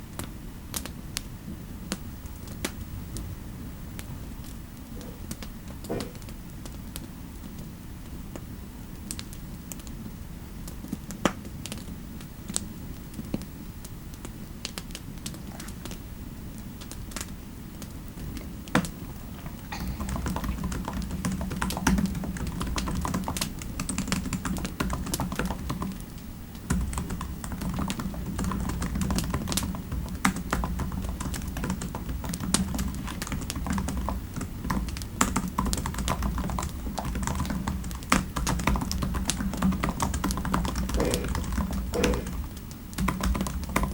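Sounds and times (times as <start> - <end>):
typing on computer keyboard: 19.7 - 26.0, 26.7 - 42.4, 43.0 - 43.9.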